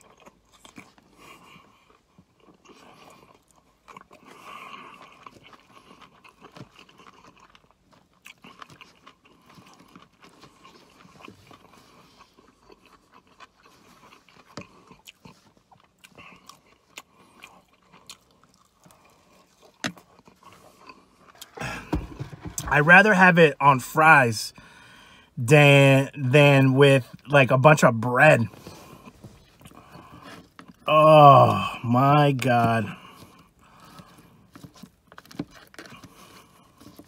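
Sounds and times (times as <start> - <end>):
person chewing food: 0.0 - 22.8, 28.4 - 31.8, 32.4 - 37.0.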